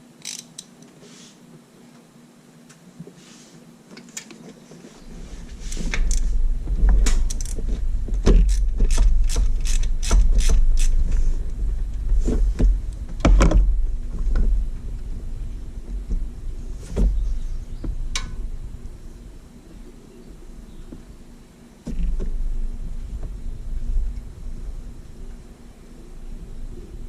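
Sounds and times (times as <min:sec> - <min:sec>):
hand ratchet clicking: 0:00.2 - 0:00.8, 0:08.4 - 0:11.0
low rumble: 0:05.1 - 0:27.0.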